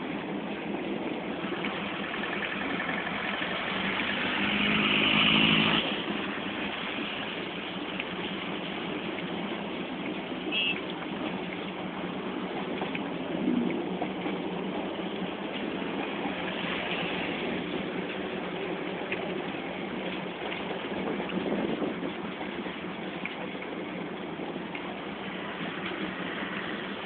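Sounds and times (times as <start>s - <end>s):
road vehicle engine passing: 1.3s - 7.9s, 15.9s - 19.1s.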